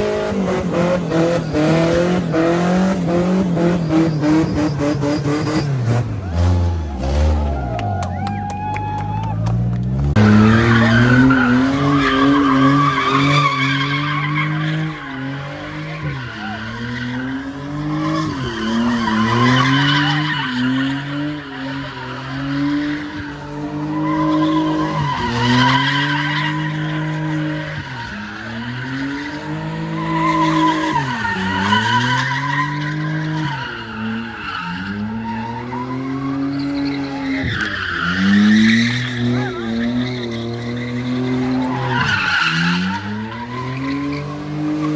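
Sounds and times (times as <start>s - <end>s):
car engine revving: 0.0s - 44.9s
tyres squealing in a skid: 0.0s - 44.9s.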